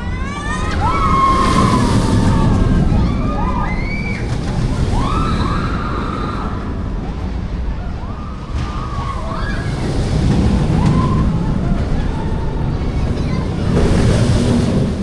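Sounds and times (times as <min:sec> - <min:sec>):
riders screaming: 0:00.0 - 0:06.8
wind and coaster train rumble: 0:00.0 - 0:15.0.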